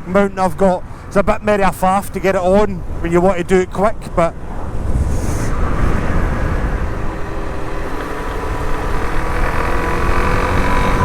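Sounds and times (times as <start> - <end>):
heavy wind: 0.0 - 11.0
road rumble: 0.0 - 11.0
motorcycle engine running: 5.8 - 11.0.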